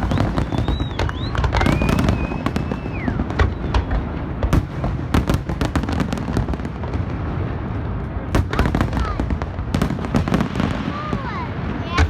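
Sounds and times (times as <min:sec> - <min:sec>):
firework whistle sliding in pitch: 0:00.0 - 0:03.9
low rumble of booms: 0:00.0 - 0:05.7
fireworks cracks and bangs: 0:00.0 - 0:12.0.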